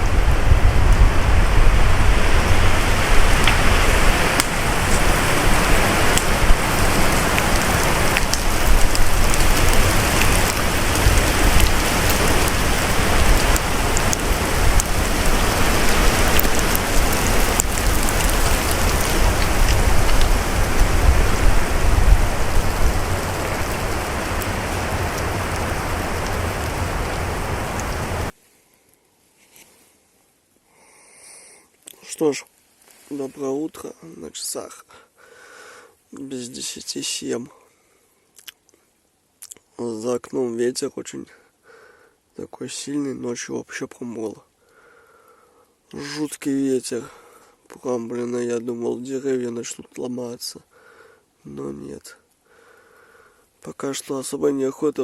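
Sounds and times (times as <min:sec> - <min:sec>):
wind gusting on microphone: 0:00.0 - 0:28.3.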